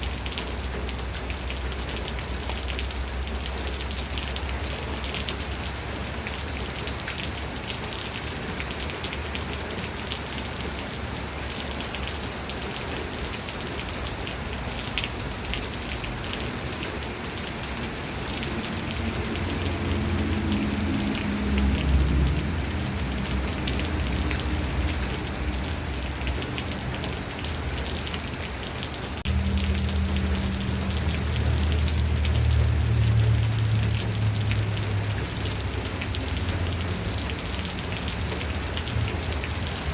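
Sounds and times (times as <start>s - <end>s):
rain falling: 0.0s - 39.9s
low rumble: 29.3s - 39.8s.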